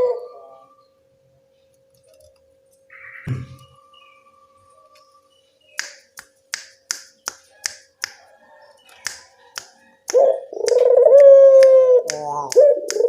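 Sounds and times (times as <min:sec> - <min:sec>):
dove cooing: 0:00.0 - 0:00.8, 0:09.4 - 0:13.0
sharp clicks: 0:09.0 - 0:13.0.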